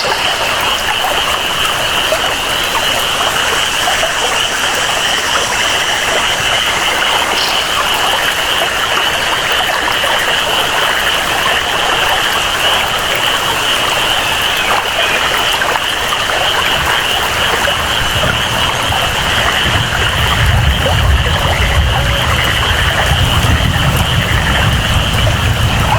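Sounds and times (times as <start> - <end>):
chorus of calling animals: 0.0 - 25.9
steady rainfall: 0.0 - 25.9
low rumble: 18.2 - 25.9.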